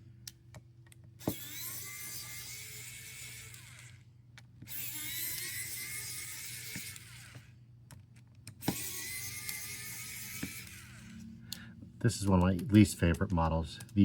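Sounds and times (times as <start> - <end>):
electric screwdriver whirring: 1.2 - 11.3.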